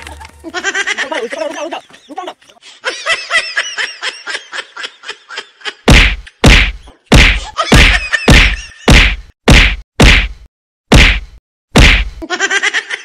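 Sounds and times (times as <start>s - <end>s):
stick whacks: 5.9s - 12.2s.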